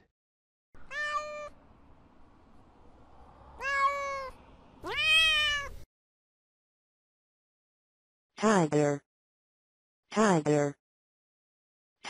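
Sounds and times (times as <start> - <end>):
cat meowing: 0.8 - 1.6, 3.6 - 5.8.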